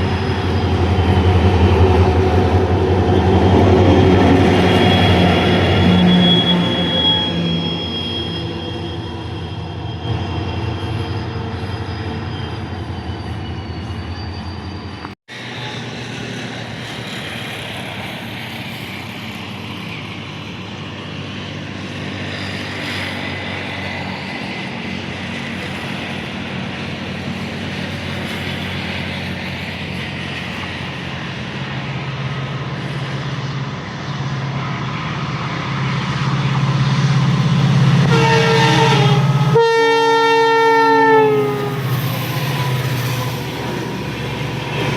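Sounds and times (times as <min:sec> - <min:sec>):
train running on rails: 0:00.0 - 0:44.9
locomotive horn: 0:01.0 - 0:09.3, 0:37.9 - 0:42.0.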